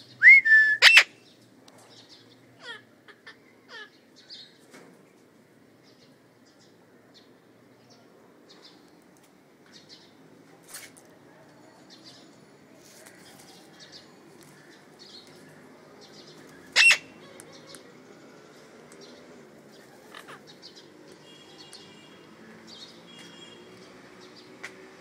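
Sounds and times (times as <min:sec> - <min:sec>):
parrot sharp call: 0:00.2 - 0:01.2, 0:16.8 - 0:17.1
parrots chirping: 0:00.8 - 0:01.1, 0:16.6 - 0:17.8.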